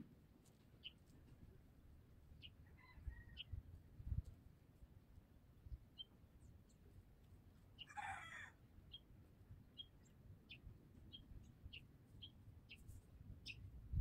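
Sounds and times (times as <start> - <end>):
small bird chirping high: 5.9 - 6.2, 7.8 - 9.1, 9.7 - 13.7.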